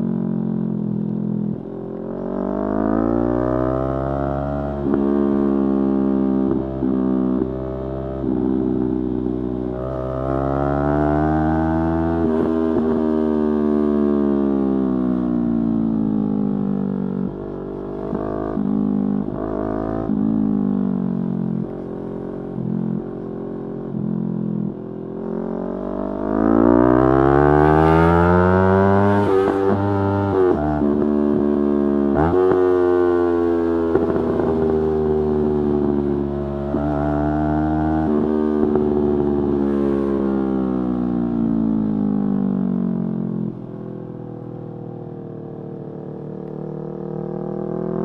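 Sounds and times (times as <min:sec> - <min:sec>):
motorcycle engine accelerating: 0:00.0 - 0:48.0.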